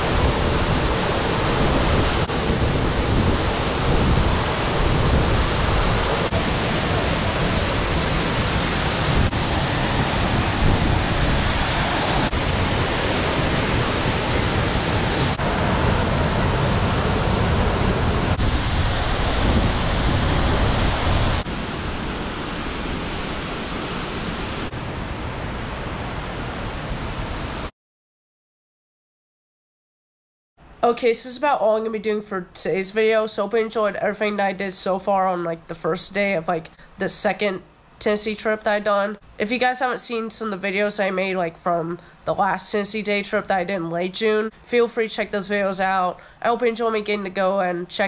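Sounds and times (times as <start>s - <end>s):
waterfall rushing: 0.0s - 26.5s.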